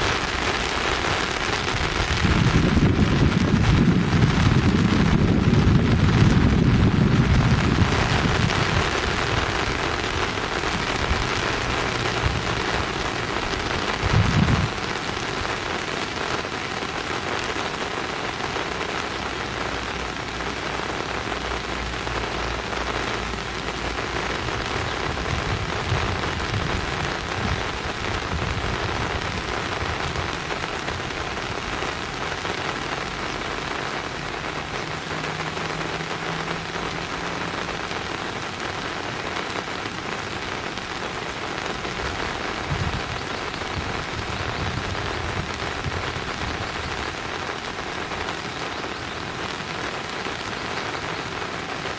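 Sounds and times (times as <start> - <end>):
steady rain falling: 0.0 - 51.9.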